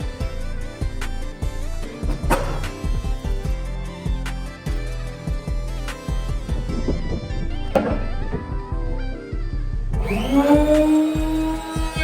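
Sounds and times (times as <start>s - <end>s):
bass drum hits: 6.3s - 10.2s.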